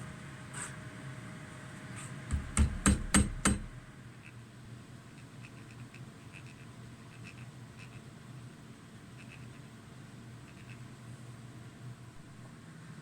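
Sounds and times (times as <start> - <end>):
hammer blows: 2.3 - 3.9.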